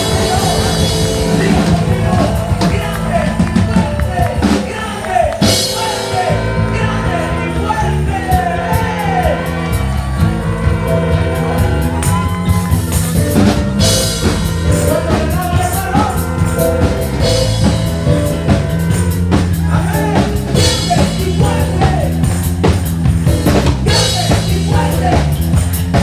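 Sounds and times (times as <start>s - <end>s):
person singing: 0.0s - 10.0s, 19.6s - 22.3s, 23.8s - 25.5s
rock band playing: 0.0s - 26.0s.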